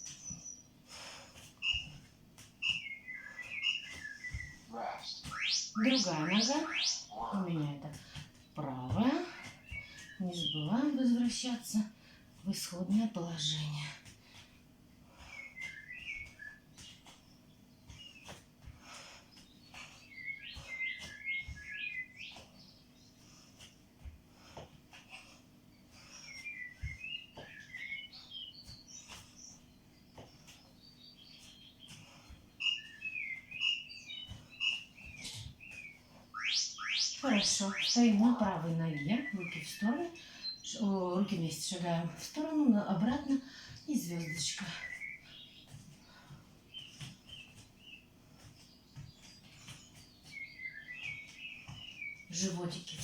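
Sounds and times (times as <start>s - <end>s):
small bird chirping: 1.6s - 7.8s, 15.3s - 18.4s, 19.3s - 23.2s, 26.1s - 40.8s, 46.7s - 52.9s.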